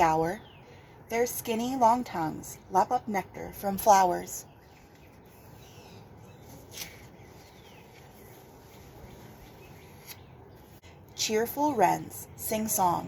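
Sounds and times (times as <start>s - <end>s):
distant bird chirps: 0.0s - 1.2s, 3.8s - 10.8s.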